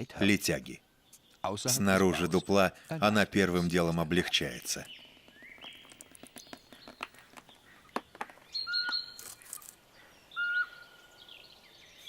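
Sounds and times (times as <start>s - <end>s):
songbirds whistling: 4.2s - 12.0s
faint ticks and scratches: 4.9s - 9.8s.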